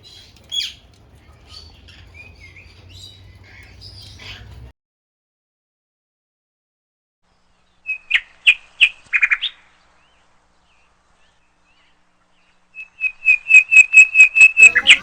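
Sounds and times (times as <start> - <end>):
parrot calling: 0.0 - 4.7, 12.8 - 15.0.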